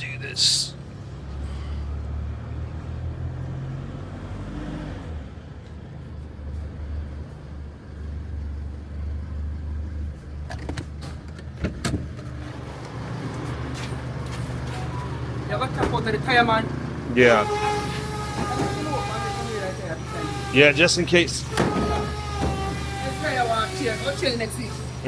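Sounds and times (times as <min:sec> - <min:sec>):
car engine and road noise: 0:00.0 - 0:25.0.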